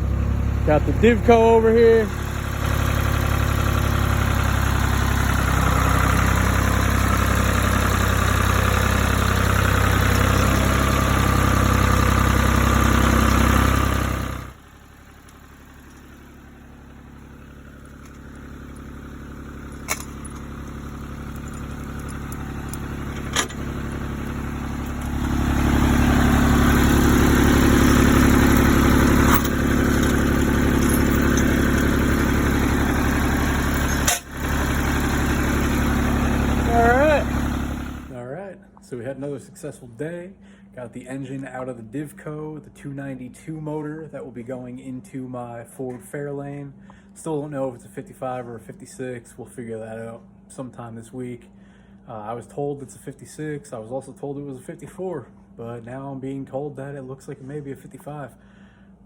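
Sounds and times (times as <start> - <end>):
tractor engine running: 0.0 - 38.2.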